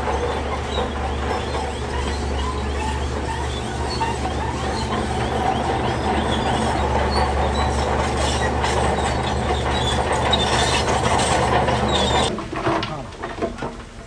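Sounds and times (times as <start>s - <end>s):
steel tracks squeaking: 0.0s - 12.3s
bulldozer diesel engine running: 0.0s - 12.4s
metal clanking: 0.0s - 12.8s.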